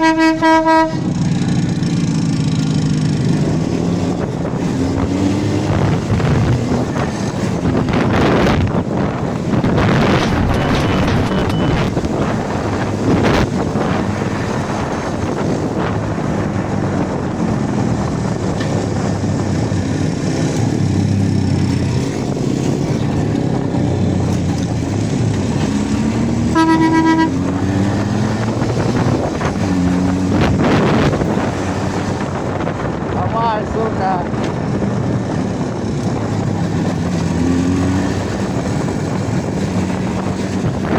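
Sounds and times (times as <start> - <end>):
vehicle horn blast: 0.0 - 1.1, 10.2 - 12.0, 26.5 - 27.6
motorcycle engine revving: 0.0 - 40.9
wind rushing over microphone: 0.0 - 40.9.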